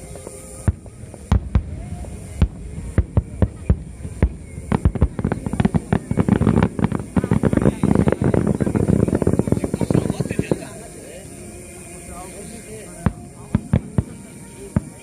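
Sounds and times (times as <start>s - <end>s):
fireworks bangs and crackle: 0.0s - 10.9s, 13.0s - 15.0s
low rumble: 0.7s - 10.8s.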